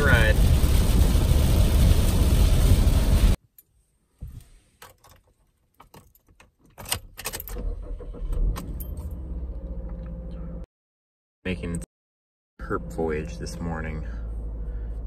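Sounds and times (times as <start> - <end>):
car engine starting and idling: 7.4 - 10.6.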